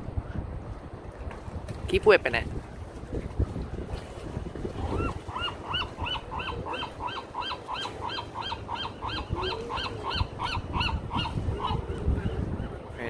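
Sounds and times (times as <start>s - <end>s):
surf: 0.0s - 13.0s
wind: 0.0s - 13.0s
bird calling: 4.8s - 13.0s.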